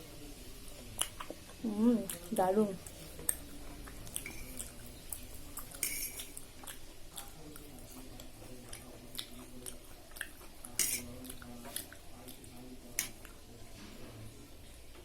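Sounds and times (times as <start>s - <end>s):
chewing food: 0.7s - 13.9s.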